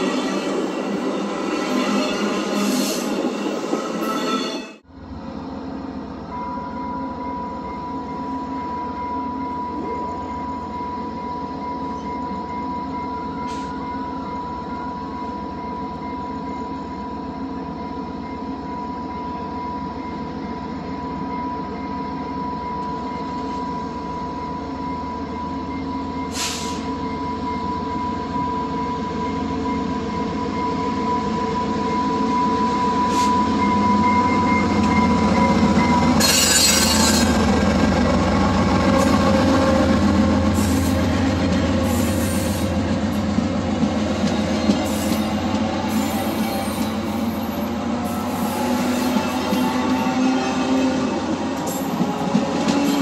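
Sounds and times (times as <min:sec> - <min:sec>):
passenger train rumbling by: 0:00.0 - 0:53.0.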